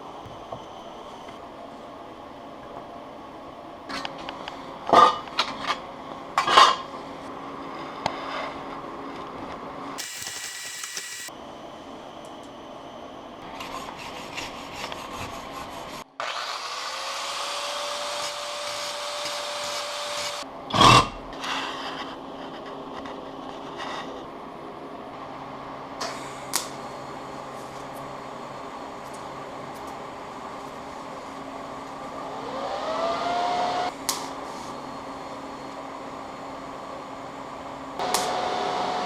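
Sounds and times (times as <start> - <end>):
steady hiss: 10.0 - 11.3.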